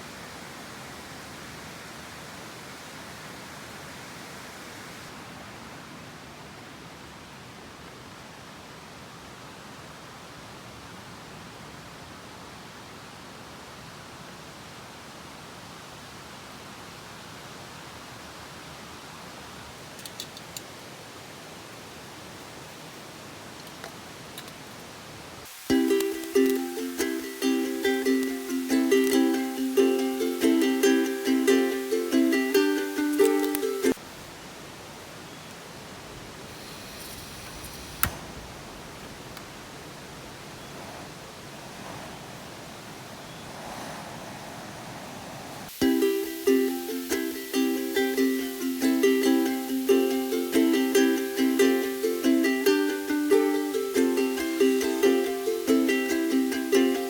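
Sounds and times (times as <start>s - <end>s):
steady hiss: 0.0s - 57.0s
faint clicks: 19.9s - 20.8s, 23.5s - 25.0s, 25.9s - 27.3s, 28.1s - 29.3s, 35.4s - 41.0s.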